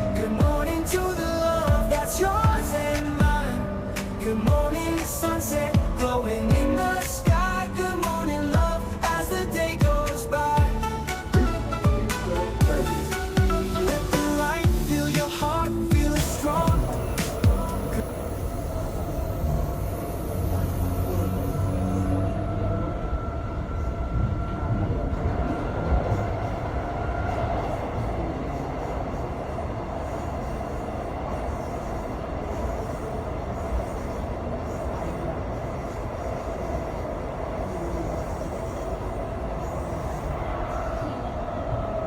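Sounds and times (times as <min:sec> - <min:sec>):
higher whine: 0:00.0 - 0:27.2
constant whine: 0:00.0 - 0:42.0
train wheels rumbling on track: 0:00.0 - 0:42.0.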